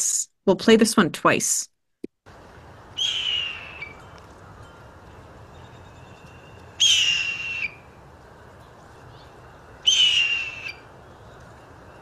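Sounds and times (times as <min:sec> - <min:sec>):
raspy hawk-like bird scream: 0:03.0 - 0:04.0, 0:06.7 - 0:07.9, 0:09.8 - 0:10.8.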